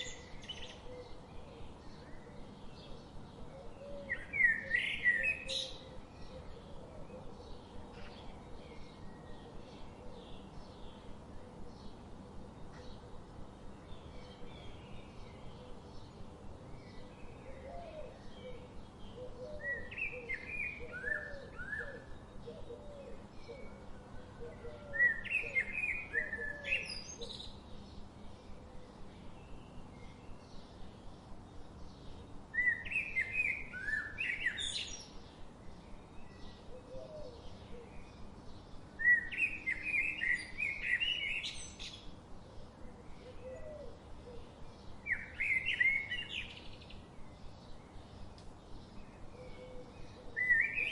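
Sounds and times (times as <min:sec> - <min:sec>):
faint background noise: 0:00.0 - 0:50.9
songbird chirping and whistling: 0:19.6 - 0:22.1, 0:32.6 - 0:35.0, 0:39.0 - 0:42.0, 0:45.1 - 0:46.6, 0:49.4 - 0:50.9.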